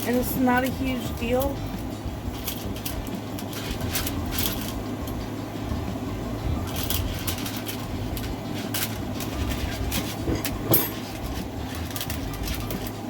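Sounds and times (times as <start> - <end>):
steady low hum: 0.0 - 13.0
craft materials rustling: 6.7 - 13.0.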